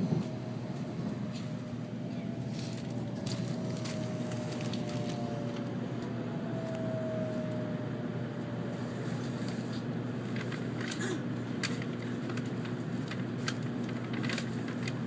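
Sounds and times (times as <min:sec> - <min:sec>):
train running gear rumble: 0:00.0 - 0:15.0.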